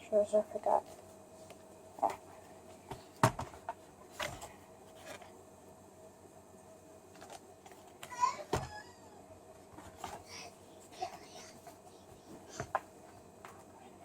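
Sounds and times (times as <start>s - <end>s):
faint steady hum: 0.0s - 14.0s
board book pages turning: 2.9s - 5.4s.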